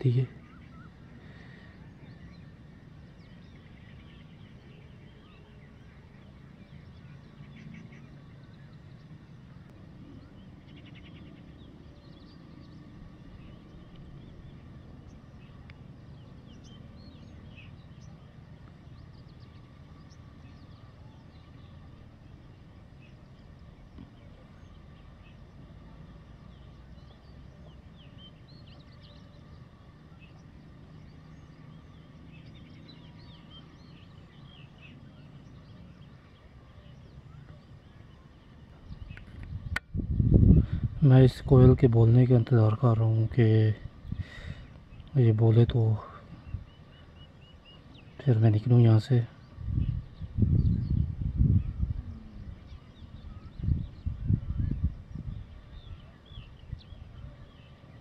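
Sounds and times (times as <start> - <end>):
low outdoor rumble: 0.0 - 58.0
small birds chirping: 0.0 - 58.0.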